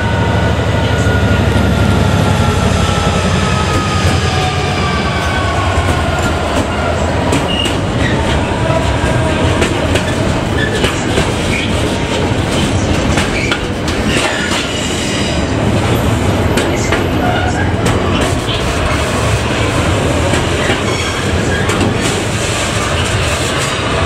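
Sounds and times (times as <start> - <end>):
train wheels clattering over rail joints: 9.4 - 18.7, 20.2 - 23.7.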